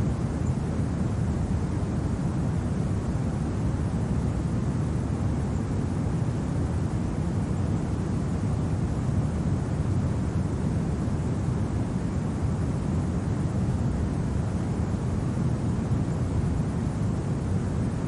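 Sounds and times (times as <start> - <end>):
wind blowing steadily: 0.0 - 18.0.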